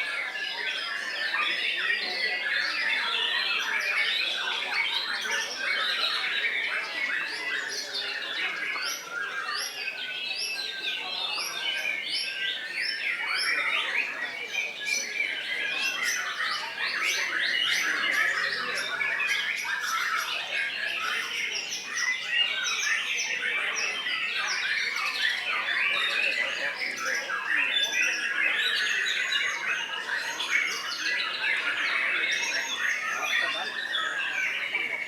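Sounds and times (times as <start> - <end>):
birds singing chirps and whistles: 0.0 - 35.0.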